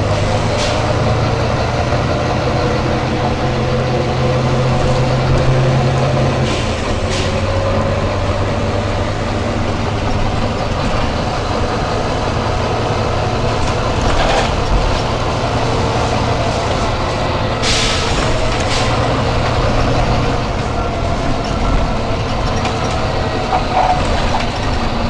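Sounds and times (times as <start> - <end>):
bus diesel engine running: 0.0 - 25.0
compressed air hisses: 17.6 - 18.1.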